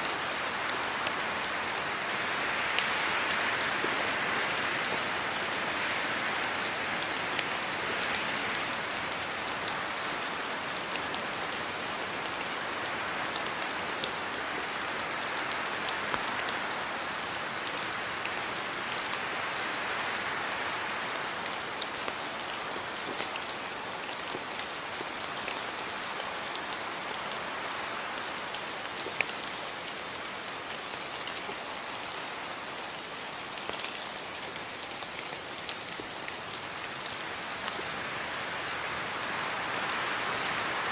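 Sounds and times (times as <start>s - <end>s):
steady rain hissing: 0.0s - 40.9s
raindrops ticking: 28.9s - 37.9s.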